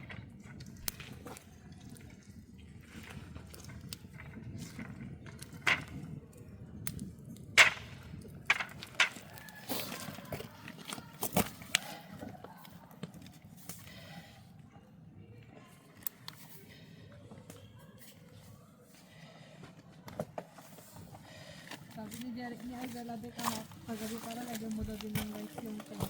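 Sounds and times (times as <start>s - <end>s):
sharp knocks and clatters: 7.6s - 9.4s.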